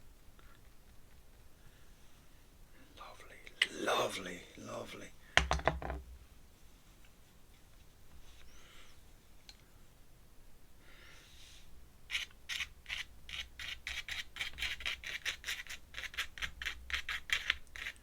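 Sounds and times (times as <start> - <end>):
pen scratching on paper: 12.1 - 18.0.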